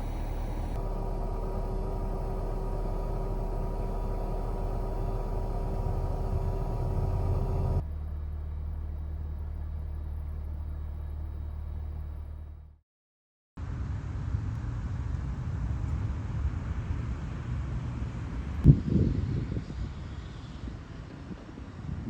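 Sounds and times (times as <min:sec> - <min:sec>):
air conditioner blowing: 0:00.0 - 0:07.8
engine and road rumble: 0:00.0 - 0:12.8, 0:13.6 - 0:22.0.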